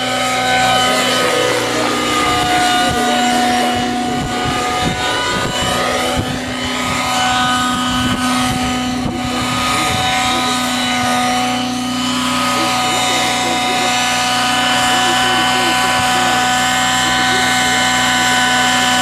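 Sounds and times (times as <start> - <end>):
rc helicopter high-pitched whine: 0.0 - 19.0.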